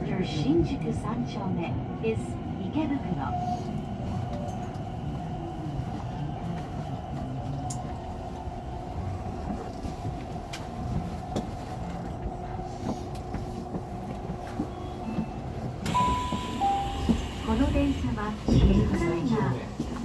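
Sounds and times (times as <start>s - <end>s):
subway train running: 0.0s - 20.0s
rail clicks: 9.4s - 20.0s.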